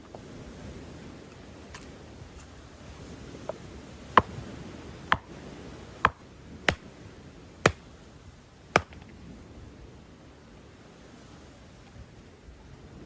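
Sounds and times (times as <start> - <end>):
sharp knocks: 6.0 - 6.8, 8.8 - 9.0.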